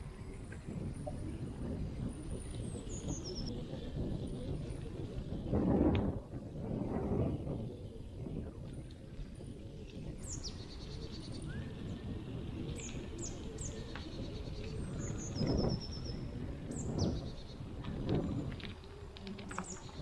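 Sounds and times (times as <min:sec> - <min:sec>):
songbirds calling and trilling: 0:00.0 - 0:20.0.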